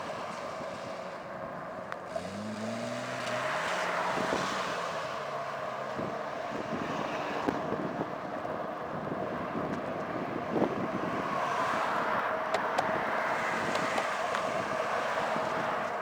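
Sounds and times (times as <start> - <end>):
road noise: 0.0 - 16.0
wind over microphone: 5.9 - 16.0.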